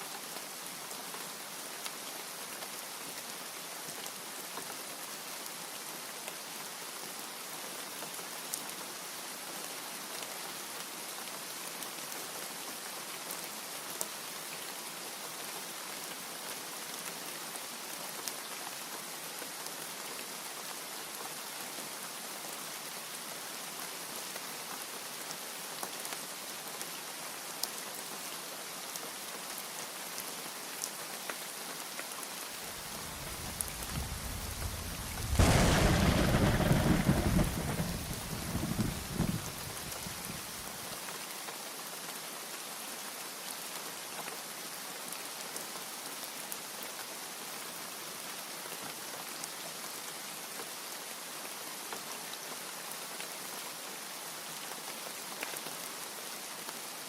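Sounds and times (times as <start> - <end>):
rain hiss: 0.0 - 57.0
raindrop ticks: 32.7 - 40.4.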